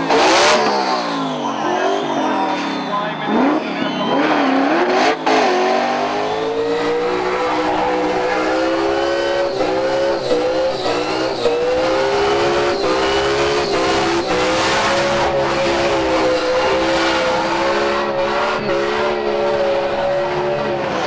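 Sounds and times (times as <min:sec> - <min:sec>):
car engine revving high: 0:00.0 - 0:21.0.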